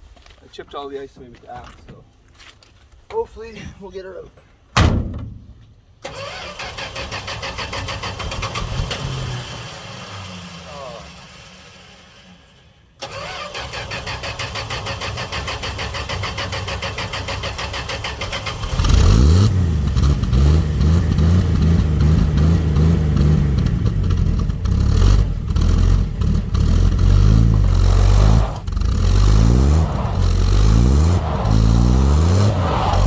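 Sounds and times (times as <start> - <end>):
engine cranking on starter: 6.0 - 10.2, 11.1 - 20.2.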